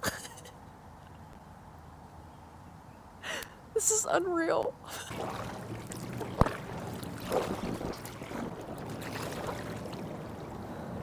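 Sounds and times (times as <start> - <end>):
light wind: 0.0 - 11.0
water lapping at a kayak: 4.9 - 11.0.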